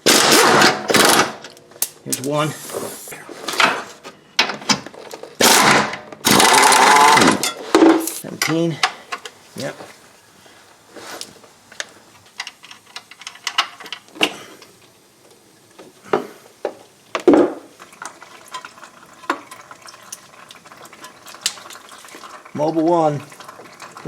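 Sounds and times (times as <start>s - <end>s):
liquid trickling: 17.8s - 24.0s.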